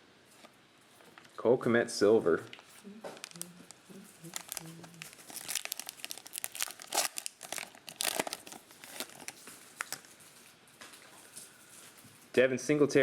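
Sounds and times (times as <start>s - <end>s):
plastic wrapping crinkling: 2.5s - 12.1s.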